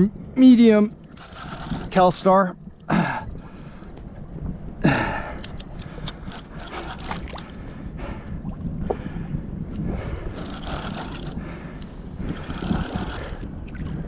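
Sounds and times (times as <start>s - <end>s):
wind buffeting microphone: 0.0s - 14.0s
water splashing against kayak hull: 0.3s - 14.0s.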